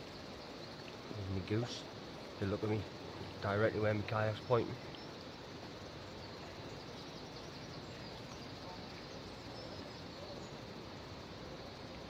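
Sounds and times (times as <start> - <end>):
outdoor background hiss: 0.0 - 12.0
faint high bird chirps: 2.4 - 12.0.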